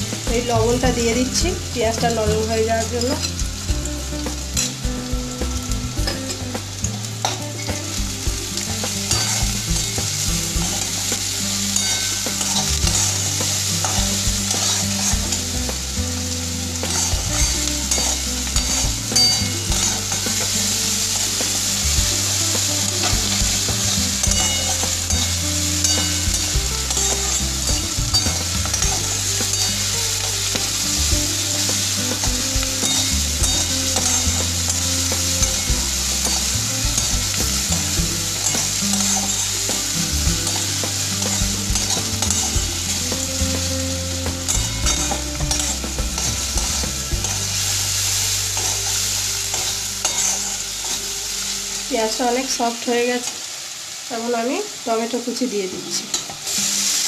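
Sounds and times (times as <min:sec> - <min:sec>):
onions sizzling in hot oil: 0:00.0 - 0:57.0
metal spatula scraping pan: 0:11.7 - 0:15.5, 0:16.8 - 0:20.6, 0:44.4 - 0:47.6, 0:48.4 - 0:51.1.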